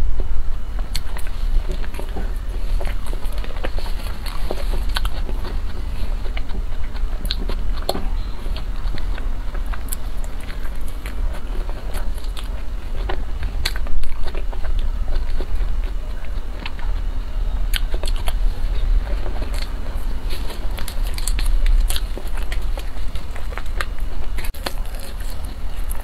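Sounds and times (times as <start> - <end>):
steady low hum: 0.0 - 26.0
person chewing wetly: 0.7 - 26.0.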